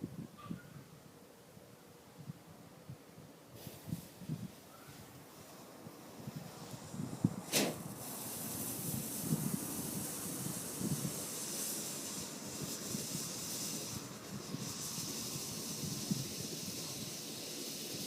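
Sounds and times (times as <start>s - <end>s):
firework hissing: 3.5s - 18.0s
firework pop: 7.4s - 9.4s.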